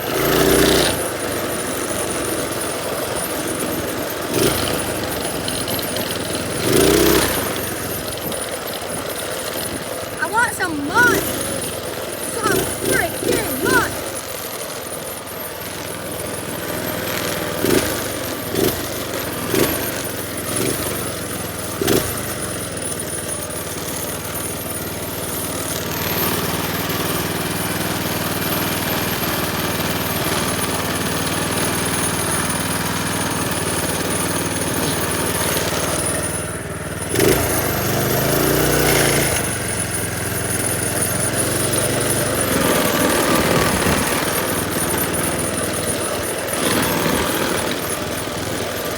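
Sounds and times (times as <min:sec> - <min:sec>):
small engine running: 0:00.0 - 0:48.9.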